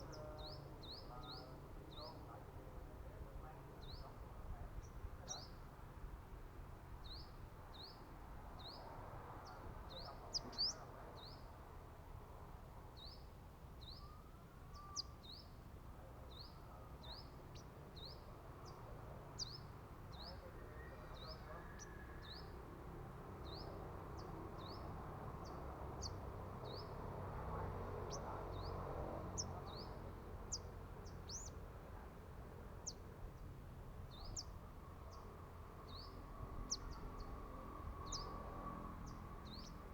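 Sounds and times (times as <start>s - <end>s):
faint background noise: 0.0s - 39.9s
bird chirping: 29.4s - 31.6s, 38.0s - 38.4s.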